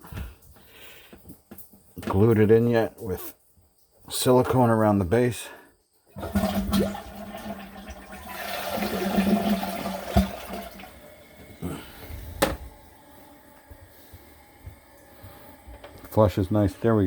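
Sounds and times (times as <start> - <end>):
toilet flushing: 6.2 - 17.0.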